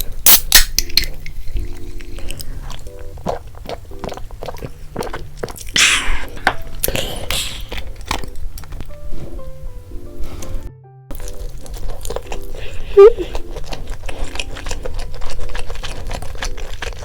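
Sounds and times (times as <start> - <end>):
crunchy biting and chewing: 0.0 - 8.9, 10.4 - 17.0
soft background music: 0.0 - 17.0.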